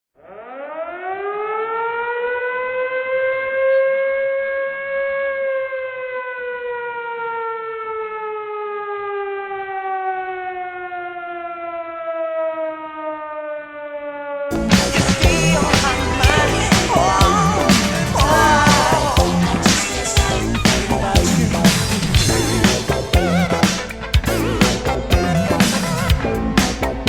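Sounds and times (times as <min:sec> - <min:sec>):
siren winding up and down: 0:14.5 - 0:27.0.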